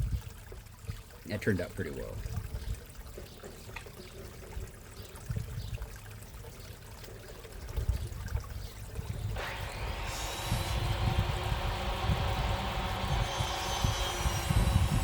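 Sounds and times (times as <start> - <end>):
wind rumbling on microphone: 0.0 - 1.0, 2.1 - 3.0, 4.5 - 5.9, 7.6 - 15.0
pond water trickling: 0.0 - 15.0
loud mechanical noise: 9.4 - 15.0.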